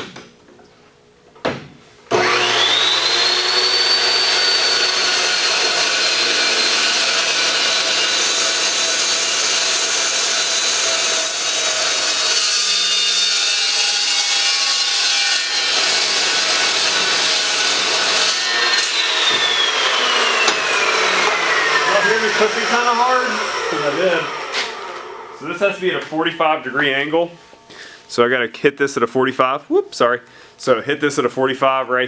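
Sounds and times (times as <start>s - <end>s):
power tool cutting steel: 2.1s - 25.8s.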